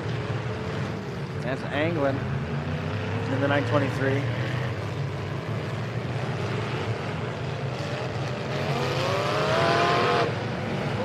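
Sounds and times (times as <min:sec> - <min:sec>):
truck engines running: 0:00.0 - 0:11.0
engine revving with rising whine: 0:05.3 - 0:11.0.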